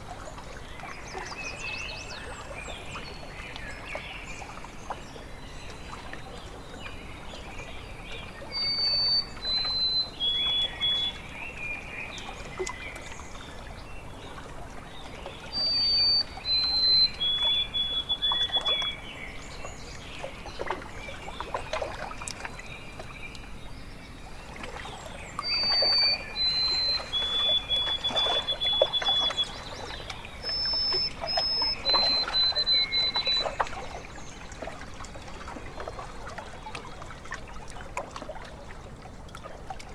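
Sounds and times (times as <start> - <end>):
water trickling and lapping: 0.0 - 39.9
songbird whistling: 8.6 - 11.2, 15.5 - 19.0, 25.4 - 33.6.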